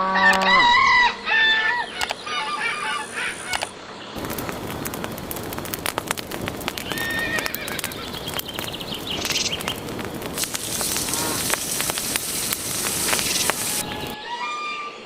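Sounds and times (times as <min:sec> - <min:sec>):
animal calls: 0:00.0 - 0:04.4, 0:06.6 - 0:14.2
crackle of clicks: 0:02.0 - 0:02.2, 0:03.5 - 0:14.2
steady hiss: 0:02.2 - 0:14.2.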